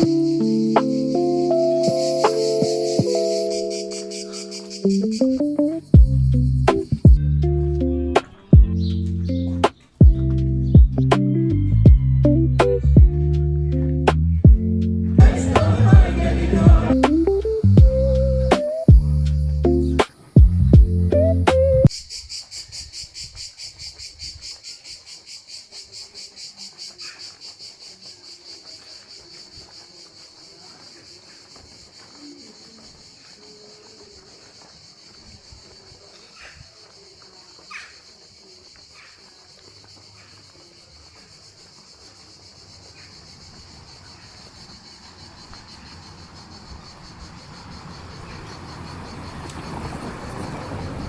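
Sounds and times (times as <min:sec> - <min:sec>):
insect chirping: 0:00.0 - 0:16.2, 0:16.9 - 0:51.0
vehicle rumble: 0:05.0 - 0:21.9, 0:45.0 - 0:51.0
low rumble: 0:14.5 - 0:18.2.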